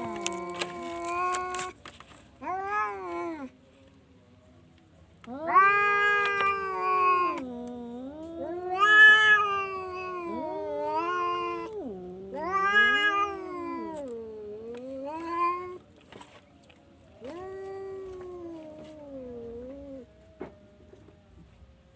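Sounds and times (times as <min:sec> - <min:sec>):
cat yowling: 0:00.0 - 0:01.8, 0:02.4 - 0:03.5, 0:05.3 - 0:15.8, 0:17.2 - 0:21.1.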